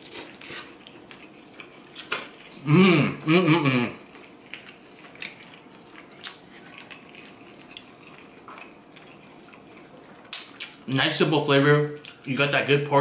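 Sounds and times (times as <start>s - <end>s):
quiet chewing: 0.0s - 2.7s, 3.8s - 10.8s.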